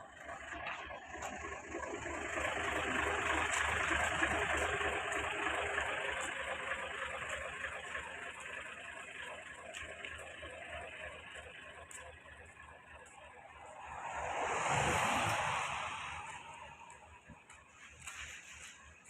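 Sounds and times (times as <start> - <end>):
motor vehicle rushing: 12.6 - 19.0.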